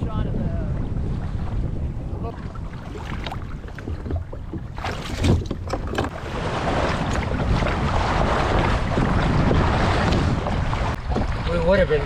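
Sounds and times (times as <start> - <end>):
rushing water: 0.0 - 12.0
wind on microphone: 0.0 - 12.0
paddle splashes: 0.9 - 12.0.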